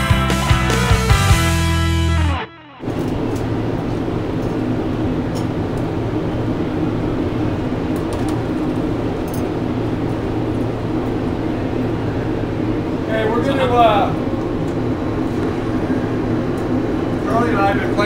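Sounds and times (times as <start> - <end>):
mechanical hum with hiss: 2.8 - 18.0.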